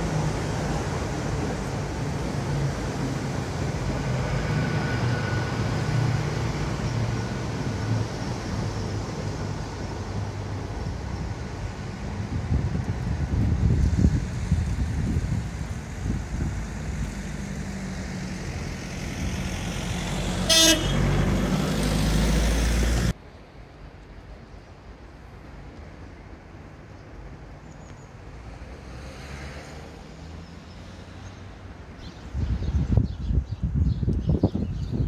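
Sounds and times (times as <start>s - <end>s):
diesel train rumbling: 0.0s - 27.6s
faint outdoor background: 0.0s - 35.0s
train horn toot: 20.4s - 21.1s.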